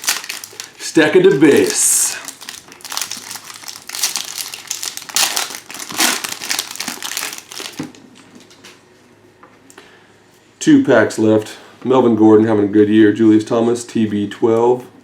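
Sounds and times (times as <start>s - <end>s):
cards rustling: 0.0s - 7.9s
foil wrapper crinkling: 0.0s - 8.0s.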